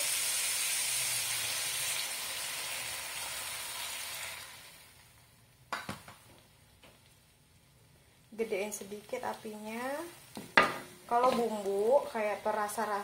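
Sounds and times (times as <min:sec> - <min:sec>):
vegetables sizzling in a wok: 0:00.0 - 0:05.7, 0:07.2 - 0:13.0.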